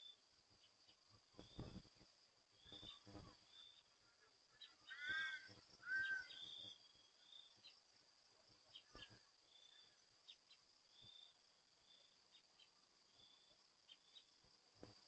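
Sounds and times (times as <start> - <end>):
insects chirring: 0.0 - 15.0
short arched pitched calls: 4.2 - 6.8.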